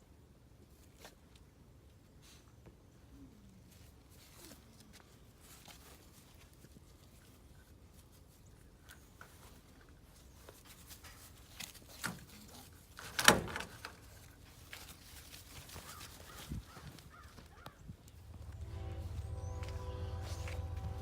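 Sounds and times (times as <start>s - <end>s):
puppies playing: 14.0s - 17.6s.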